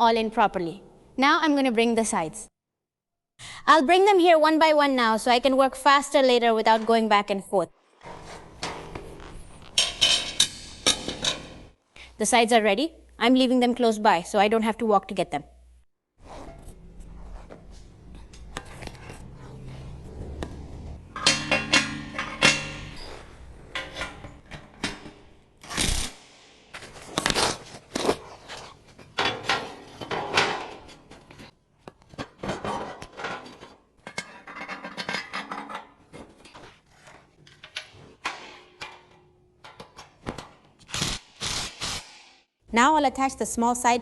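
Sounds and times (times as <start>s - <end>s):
metal scraping: 8.0s - 11.8s, 16.2s - 25.4s
metal parts clanking on table: 21.1s - 25.1s.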